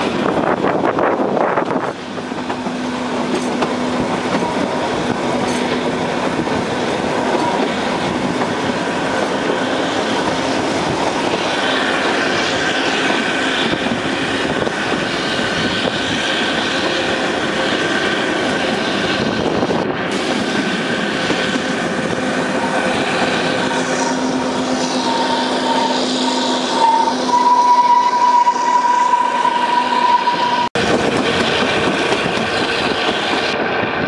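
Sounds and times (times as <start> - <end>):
train wheels rumbling on rail: 0.0 - 34.0
high wheel squeal: 9.0 - 18.9, 20.6 - 30.8.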